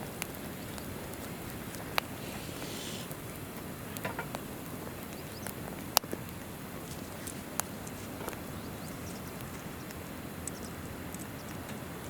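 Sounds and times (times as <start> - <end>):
campfire crackling and popping: 0.0 - 12.0
river flowing: 1.0 - 4.7.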